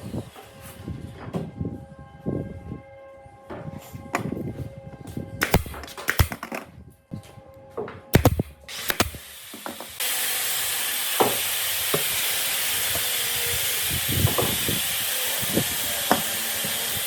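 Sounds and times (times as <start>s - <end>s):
pressurised air hissing from nozzle: 8.2s - 17.0s.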